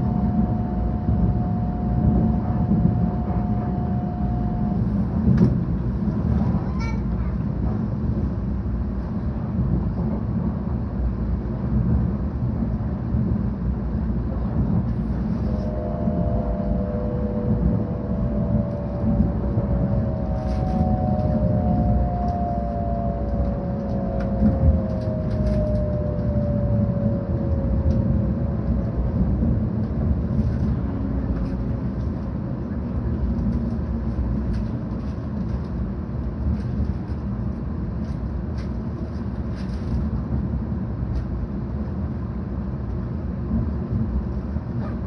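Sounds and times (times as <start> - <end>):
faint two-tone whine: 0.0 - 6.2, 14.5 - 33.9
train cabin rumble: 0.0 - 45.0.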